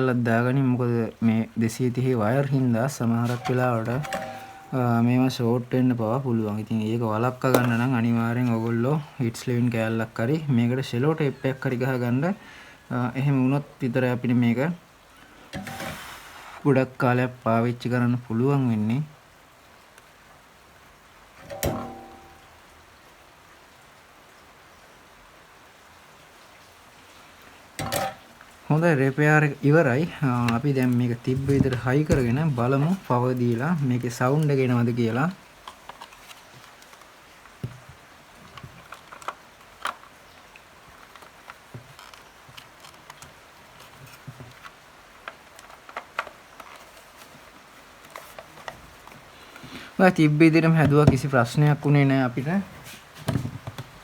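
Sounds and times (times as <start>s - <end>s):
faint steady hiss: 0.0s - 54.0s
light clicks and knocks of radio parts: 7.4s - 7.9s, 35.6s - 49.8s.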